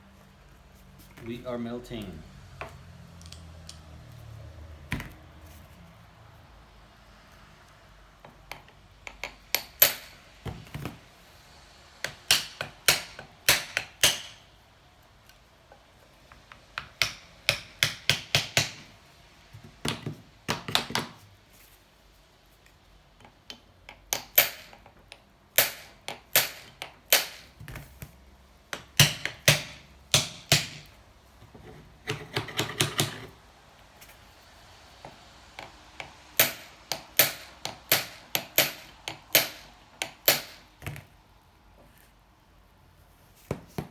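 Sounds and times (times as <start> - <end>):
metal-on-metal tapping: 35.6 - 40.7.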